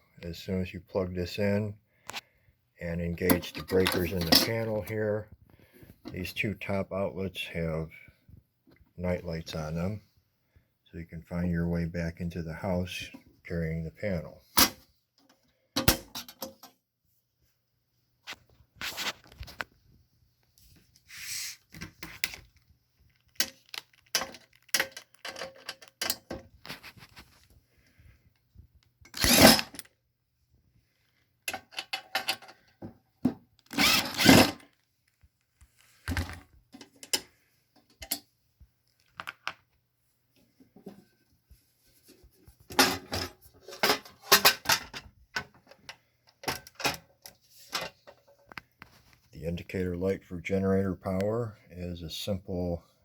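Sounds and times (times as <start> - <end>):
metal panel box clicks and clatter: 42.7 - 45.5.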